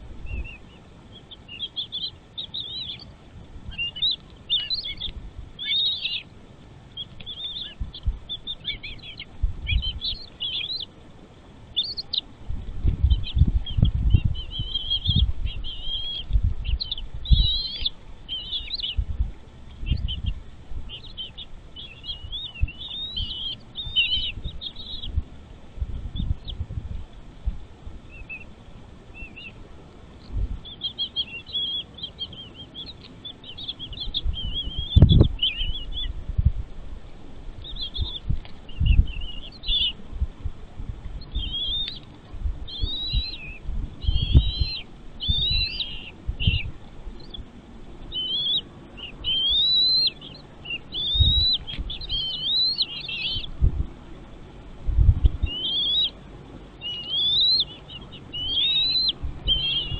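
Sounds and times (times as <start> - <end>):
small birds chirping: 0.0 - 59.9
dull low thumps: 7.8 - 8.7, 12.5 - 18.2, 18.8 - 28.1, 33.9 - 41.8, 42.4 - 47.4, 51.1 - 52.1, 53.3 - 54.0, 54.8 - 55.6.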